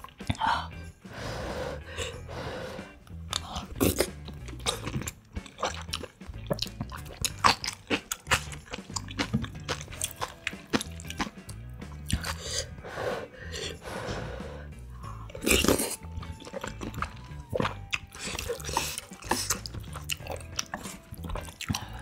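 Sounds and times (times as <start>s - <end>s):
person chewing noodles: 3.1s - 13.9s, 15.2s - 22.0s
wet mouth clicks and smacks: 3.3s - 12.4s.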